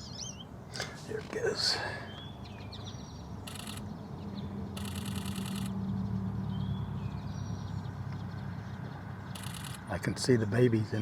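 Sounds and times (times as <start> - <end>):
faint bird chirps: 0.0 - 5.8, 9.3 - 9.9
camera shutter bursts: 3.5 - 3.8, 4.8 - 5.7, 9.4 - 9.9.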